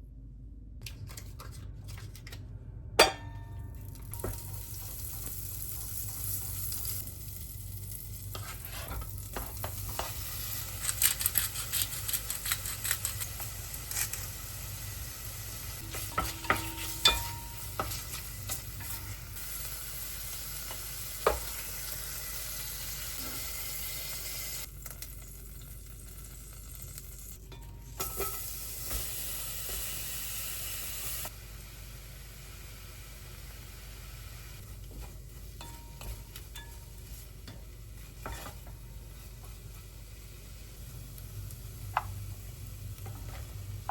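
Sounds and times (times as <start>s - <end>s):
food sizzling in a frying pan: 4.0s - 27.4s, 28.0s - 34.7s
utensil scraping a pan: 8.3s - 11.9s, 15.8s - 19.2s.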